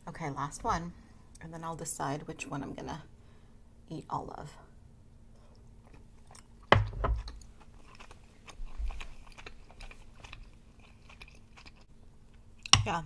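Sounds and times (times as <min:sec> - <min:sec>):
person chewing wetly: 0:05.5 - 0:12.8.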